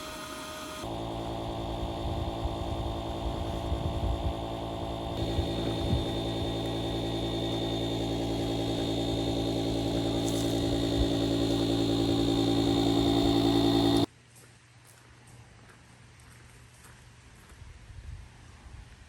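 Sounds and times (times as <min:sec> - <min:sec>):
vehicle engine running: 0:00.8 - 0:14.1.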